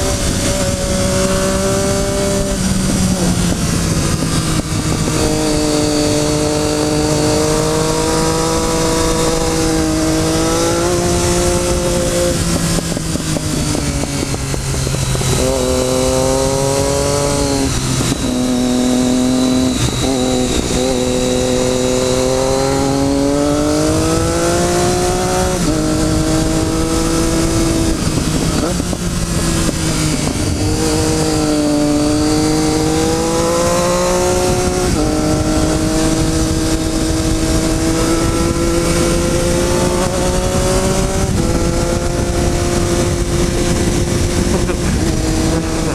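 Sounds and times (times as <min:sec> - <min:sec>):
motorcycle engine shifting gears: 0:00.0 - 0:45.9
steady rushing noise: 0:00.0 - 0:45.9.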